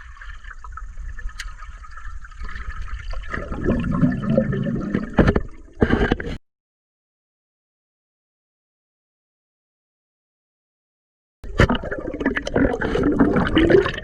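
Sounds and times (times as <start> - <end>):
water gurgling and churning: 0.0 - 6.4, 11.4 - 14.0.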